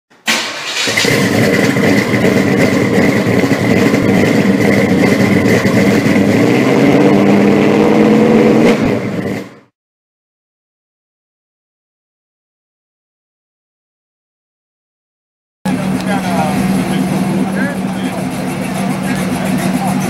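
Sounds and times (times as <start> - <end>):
car engine running: 0.4 - 9.7, 15.7 - 20.0.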